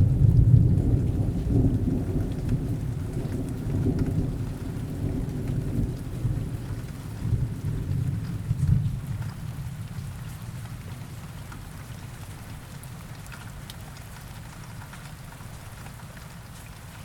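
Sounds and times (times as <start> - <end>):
low thunder rumble: 0.0 - 9.0
steady rain: 0.0 - 17.0.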